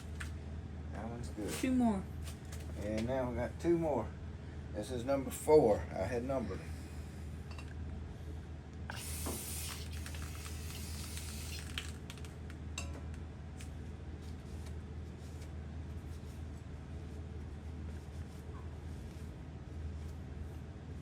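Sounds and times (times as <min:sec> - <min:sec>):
steady low hum: 0:00.0 - 0:21.0
aerosol spray burst: 0:08.9 - 0:11.8.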